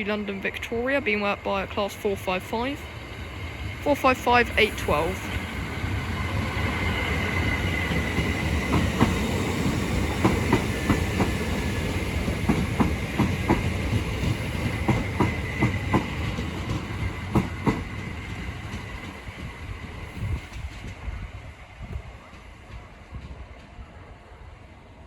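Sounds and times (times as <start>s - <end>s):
train rumble: 0.0s - 25.0s
train wheels clicking over rail joints: 4.9s - 21.2s.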